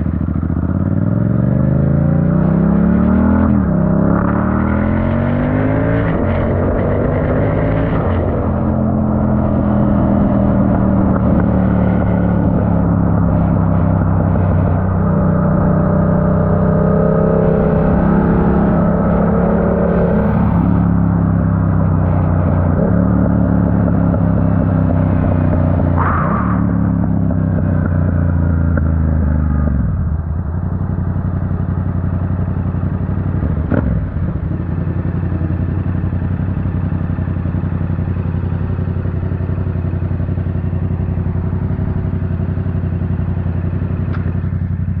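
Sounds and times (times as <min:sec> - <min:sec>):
motorcycle engine downshifting: 0:00.0 - 0:45.0
motorcycle engine idling: 0:29.0 - 0:45.0.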